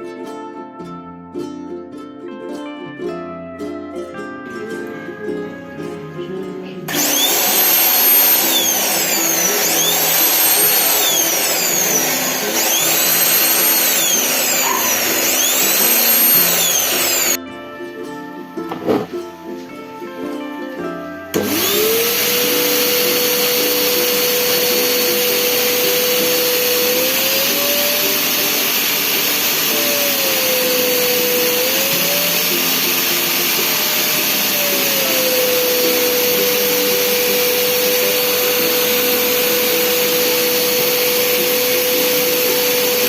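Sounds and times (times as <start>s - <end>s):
music: 0.0s - 43.0s
vacuum cleaner motor whine: 6.9s - 17.4s, 21.3s - 43.0s.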